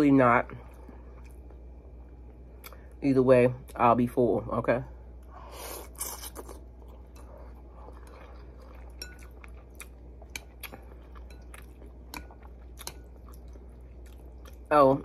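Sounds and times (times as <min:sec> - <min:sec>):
steady low hum: 0:00.0 - 0:15.0
person chewing noodles: 0:00.6 - 0:03.0, 0:05.2 - 0:14.7.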